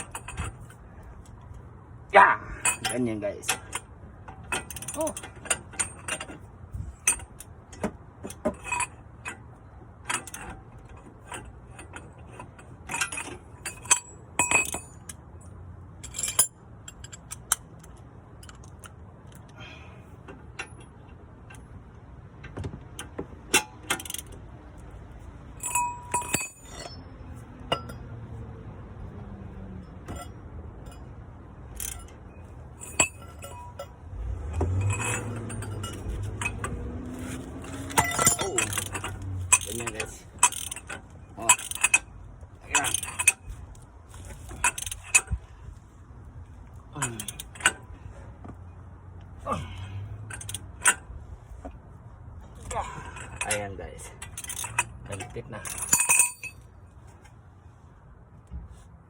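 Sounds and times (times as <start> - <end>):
metal tools clinking: 0.0 - 1.6, 2.5 - 19.5, 25.5 - 28.1, 29.8 - 45.9, 46.6 - 48.8, 49.6 - 51.6, 52.4 - 57.4.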